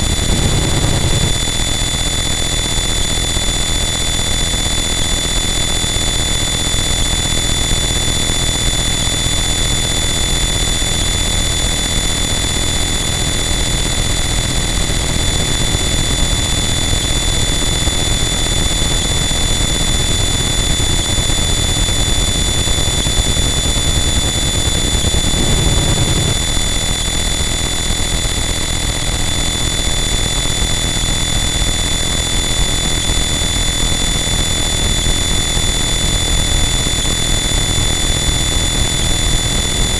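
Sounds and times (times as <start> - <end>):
distorted static: 0.0 - 1.4
high whining tones: 0.0 - 1.8.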